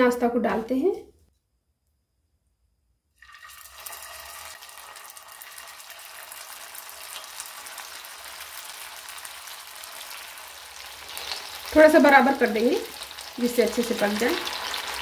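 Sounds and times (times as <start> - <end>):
patties sizzling in hot fat: 3.2 - 15.0.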